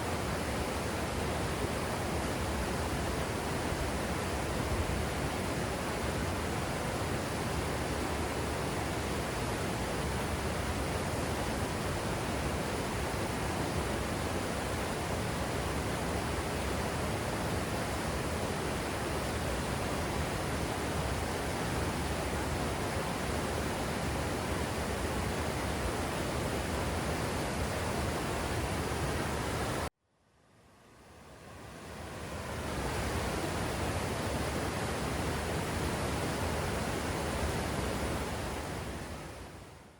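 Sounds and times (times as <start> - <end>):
waterfall roaring: 31.8 - 39.4.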